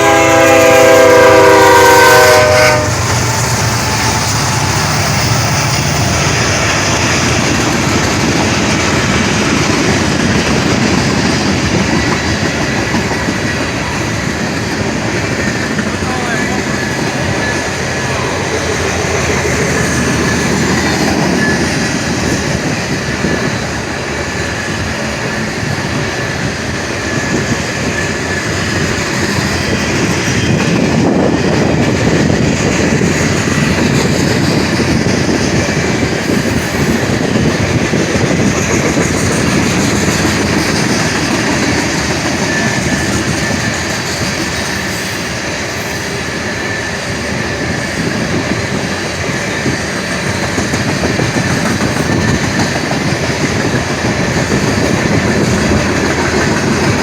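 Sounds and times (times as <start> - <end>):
train wheels rumbling and clattering: 0.0 - 57.0
high wheel squeal: 0.1 - 7.9, 13.8 - 23.8, 39.0 - 48.4.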